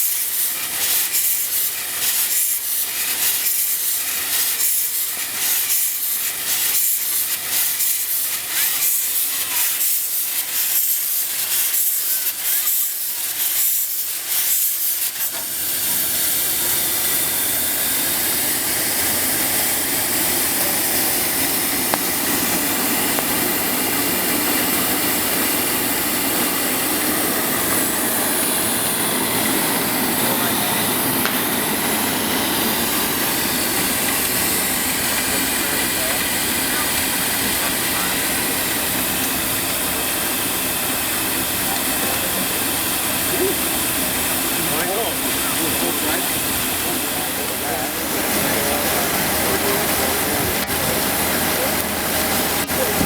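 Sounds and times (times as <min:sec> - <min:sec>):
hiss of escaping steam: 0:00.0 - 0:53.0
steam tractor exhaust puffs: 0:00.0 - 0:53.0.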